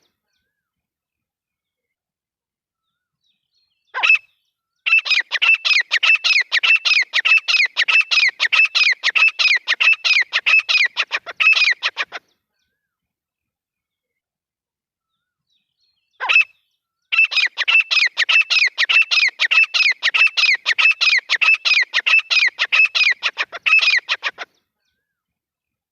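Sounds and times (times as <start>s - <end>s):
francolin calling: 4.0s - 12.2s, 16.2s - 24.5s.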